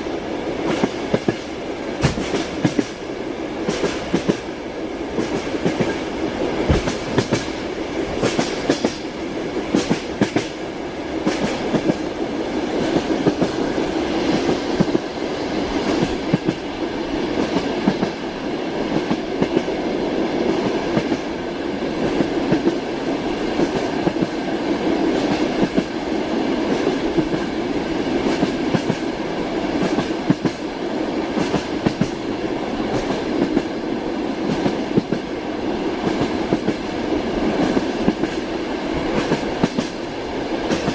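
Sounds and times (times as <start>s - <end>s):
train rolling rumble: 0.0s - 40.9s
train wheels clacking over rail joints: 0.6s - 3.0s, 3.6s - 4.5s, 5.2s - 9.1s, 9.7s - 10.6s, 11.2s - 12.1s, 31.3s - 32.2s, 37.5s - 40.9s.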